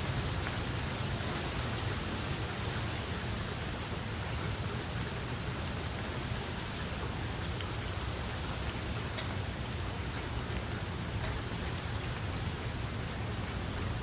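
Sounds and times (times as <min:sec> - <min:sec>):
steady rain hiss: 0:00.0 - 0:14.0
faint raindrop ticks: 0:04.4 - 0:14.0.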